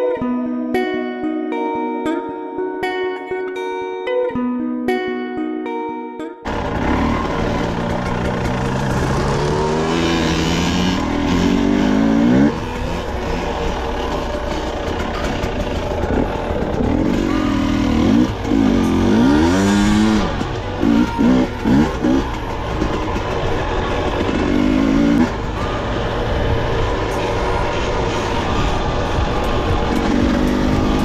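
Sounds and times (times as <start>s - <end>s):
dirt bike engine accelerating: 6.5s - 31.0s.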